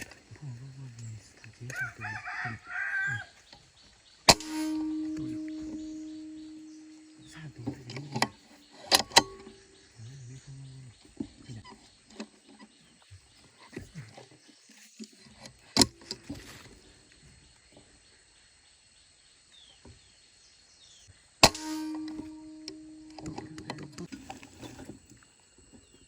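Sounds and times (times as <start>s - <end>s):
steady hum: 4.3s - 8.3s.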